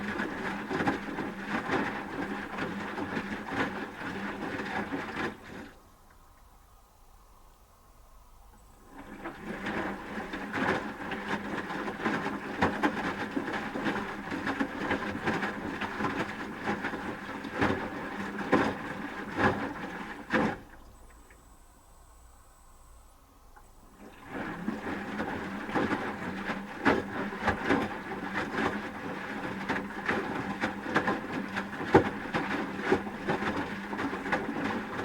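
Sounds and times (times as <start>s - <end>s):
washing machine motor whine: 8.6s - 35.0s.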